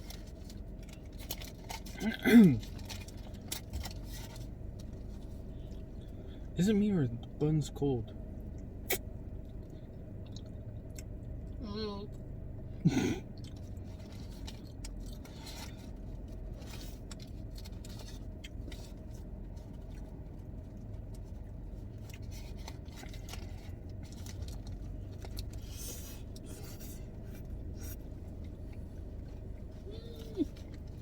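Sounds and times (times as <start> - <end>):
steady low hum: 0.0 - 31.0
person chewing food: 8.5 - 11.6, 13.2 - 15.8.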